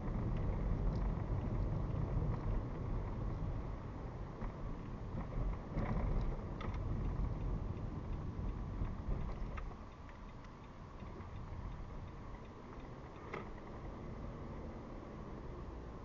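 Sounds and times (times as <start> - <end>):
road and engine rumble inside car: 0.0 - 16.0.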